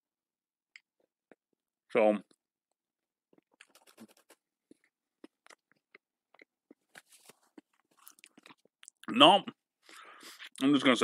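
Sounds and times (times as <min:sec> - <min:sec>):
faint cookie chewing: 0:03.3 - 0:09.1
paper napkin rustling: 0:03.7 - 0:04.4.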